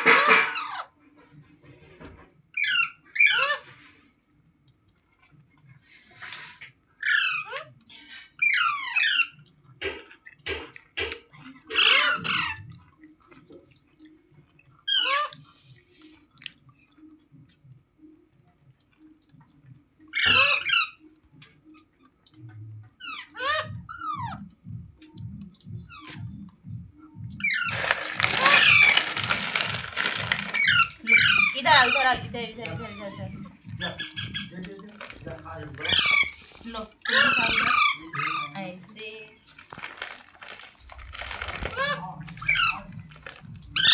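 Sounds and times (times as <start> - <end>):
parrot squawking: 2.6 - 3.6, 11.7 - 12.6, 14.9 - 15.3, 20.2 - 21.0, 27.4 - 32.2, 32.8 - 38.7, 41.6 - 43.0.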